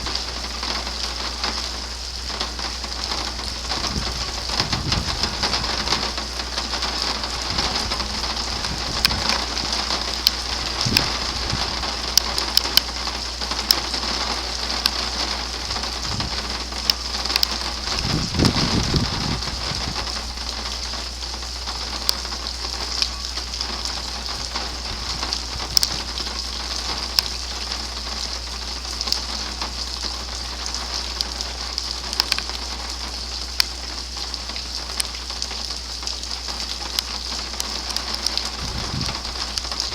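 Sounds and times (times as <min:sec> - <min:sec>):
rain hissing down: 0:00.0 - 0:39.9
raindrops ticking on surfaces: 0:00.0 - 0:39.9
low thunder rumble: 0:02.6 - 0:12.2, 0:15.6 - 0:16.6, 0:17.6 - 0:20.4, 0:38.5 - 0:39.9.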